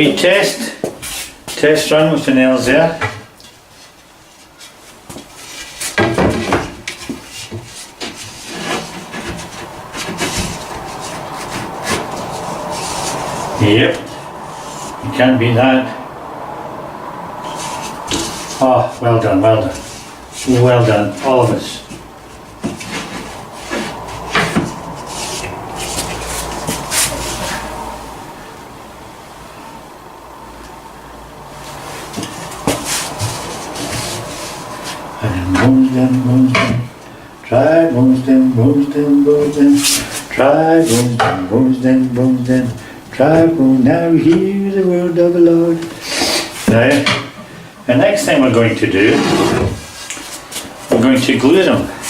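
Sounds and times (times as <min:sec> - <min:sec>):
timber scraping and rubbing: 0:03.7 - 0:15.3, 0:17.4 - 0:28.2, 0:31.6 - 0:36.9, 0:38.3 - 0:44.6, 0:45.2 - 0:52.0.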